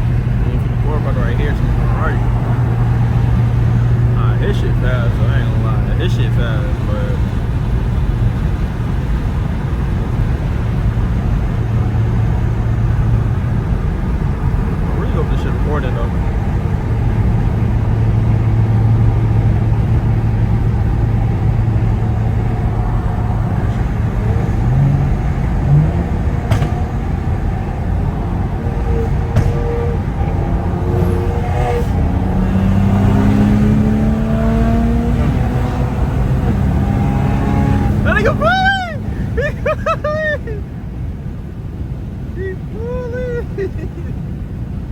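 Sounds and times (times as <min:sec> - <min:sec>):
car exhaust low drone: 0:00.0 - 0:44.9.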